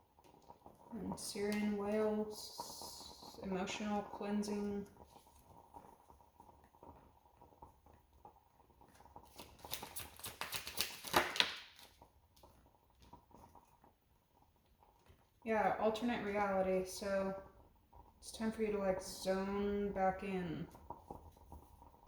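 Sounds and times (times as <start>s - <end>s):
cards being shuffled: 9.2s - 11.9s.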